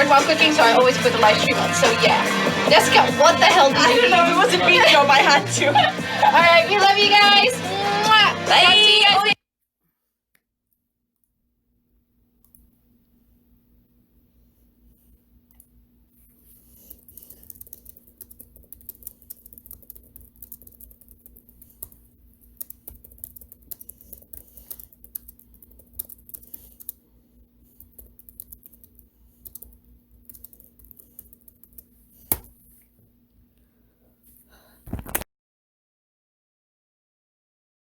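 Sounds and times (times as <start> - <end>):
faint steady hum: 11.2 - 34.8
rapid light clicking: 16.9 - 27.0, 27.7 - 32.6.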